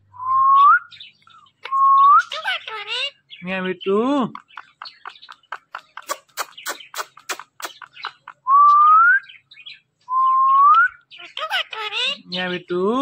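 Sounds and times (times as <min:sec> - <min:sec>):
parakeet clicking chatter: 0:02.2 - 0:03.4, 0:04.2 - 0:08.4, 0:11.0 - 0:12.3.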